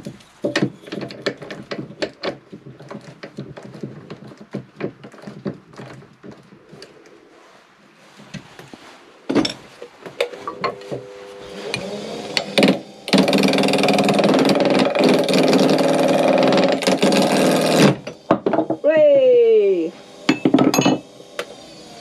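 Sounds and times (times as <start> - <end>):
knocks and clicks on wood lathe: 0.0 - 6.9, 10.2 - 18.9, 20.2 - 22.0
lathe electric motor running: 10.2 - 22.0.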